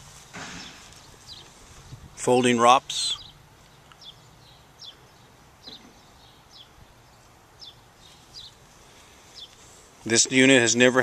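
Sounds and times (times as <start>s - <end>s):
bird chirping faintly: 3.0s - 9.7s.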